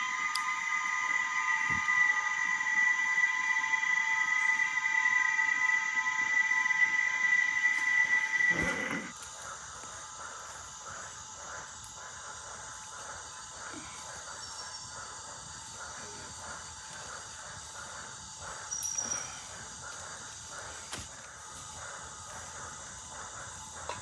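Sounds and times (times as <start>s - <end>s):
loud chirp: 0.0s - 9.1s
insects buzzing: 0.0s - 24.0s
pulsing insect call: 0.0s - 24.0s.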